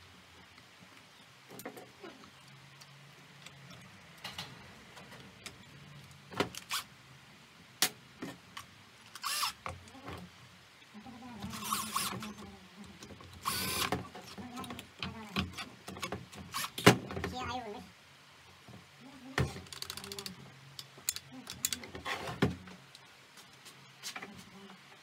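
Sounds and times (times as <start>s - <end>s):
small motor whirring: 9.2s - 9.6s, 11.5s - 12.4s, 13.4s - 14.0s.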